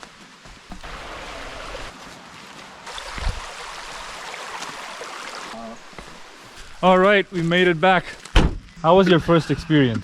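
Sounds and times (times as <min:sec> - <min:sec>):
rushing stream water: 0:00.4 - 0:07.4.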